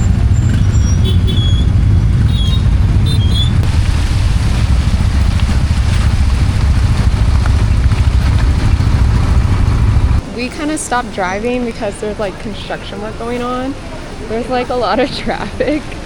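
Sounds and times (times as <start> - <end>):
motorbike engine: 0.0 - 10.2
wind on microphone: 0.0 - 10.2.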